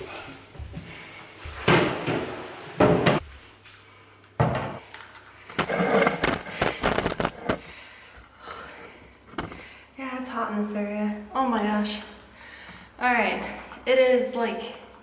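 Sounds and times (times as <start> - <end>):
household objects knocking and clattering: 1.6 - 3.3, 4.4 - 4.8, 5.5 - 7.7.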